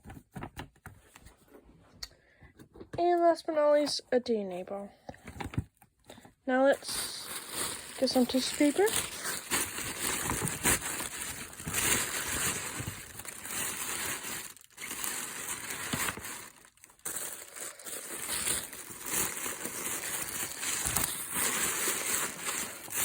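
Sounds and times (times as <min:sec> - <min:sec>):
tissue paper crinkling: 0:06.7 - 0:23.0.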